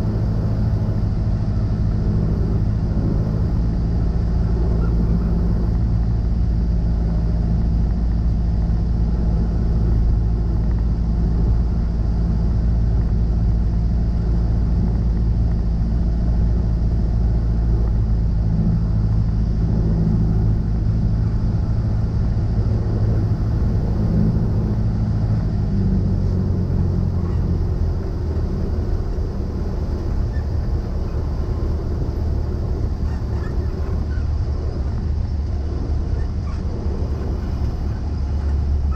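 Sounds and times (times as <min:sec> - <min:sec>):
airplane engine and propeller: 0:00.0 - 0:38.9.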